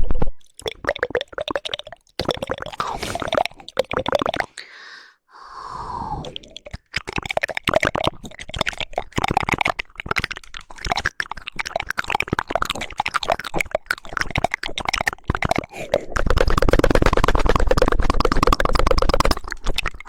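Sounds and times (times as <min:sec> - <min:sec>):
wet tongue clicks: 0:00.5 - 0:04.7, 0:06.2 - 0:20.0
breathy hissing sound: 0:04.6 - 0:06.4.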